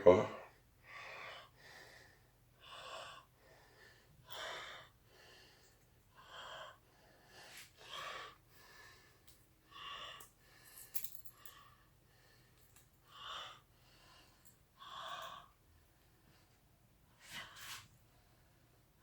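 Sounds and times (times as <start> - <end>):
man breathing: 0.5 - 16.6.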